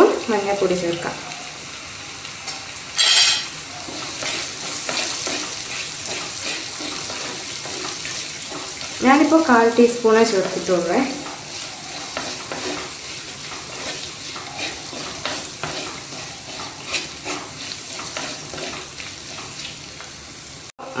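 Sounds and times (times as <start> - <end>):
food sizzling in hot oil: 0.0 - 21.0
wooden spatula scraping pot: 3.0 - 8.7, 10.4 - 19.6.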